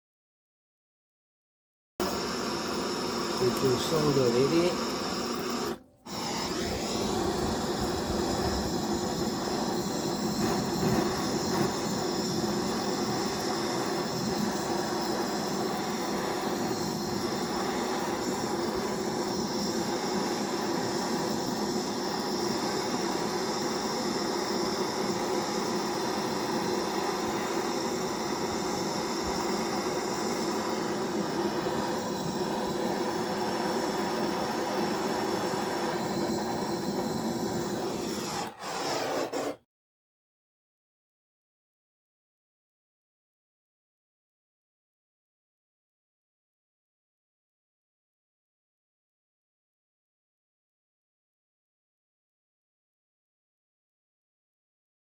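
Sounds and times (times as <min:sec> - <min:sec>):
gas torch hissing: 0:02.0 - 0:39.6.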